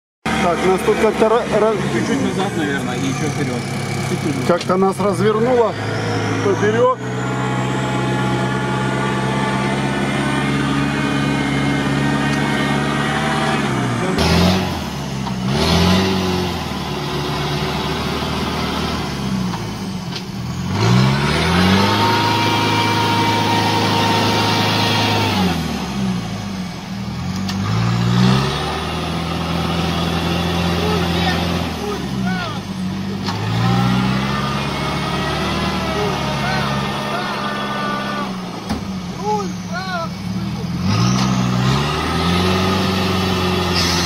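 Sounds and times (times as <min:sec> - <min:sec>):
off-road vehicle engine revving: 0:00.2 - 0:44.0
high whine: 0:01.8 - 0:15.3.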